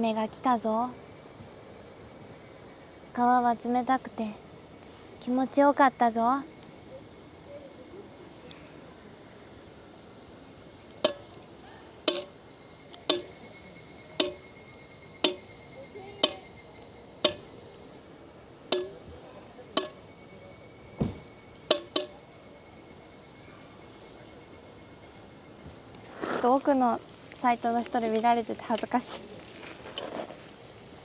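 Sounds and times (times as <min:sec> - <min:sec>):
insects trilling: 0:00.0 - 0:31.0
sharp knocks: 0:11.1 - 0:11.4, 0:12.1 - 0:12.3, 0:13.1 - 0:13.4, 0:14.2 - 0:14.5, 0:15.2 - 0:15.5, 0:16.2 - 0:16.5, 0:17.3 - 0:17.5, 0:18.7 - 0:19.1, 0:19.8 - 0:20.0, 0:21.0 - 0:22.2.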